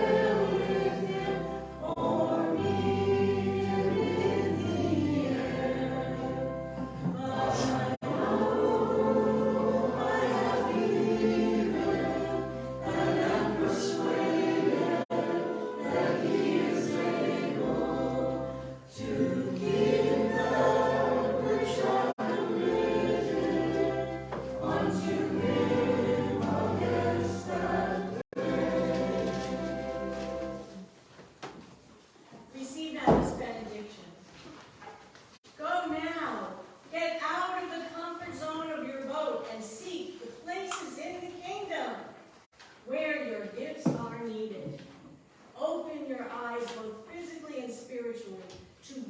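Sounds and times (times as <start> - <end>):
group singing a hymn: 0.0 - 30.8.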